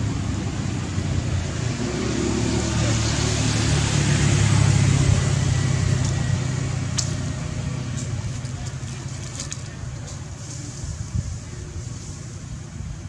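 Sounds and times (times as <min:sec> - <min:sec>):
low engine hum: 0:00.0 - 0:13.0
noisy hiss: 0:09.0 - 0:13.0.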